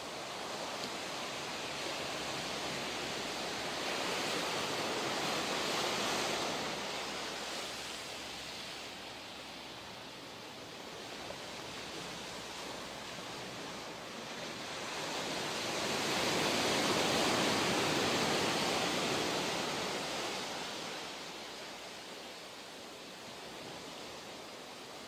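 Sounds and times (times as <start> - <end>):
ocean wave surging: 0.0 - 25.0.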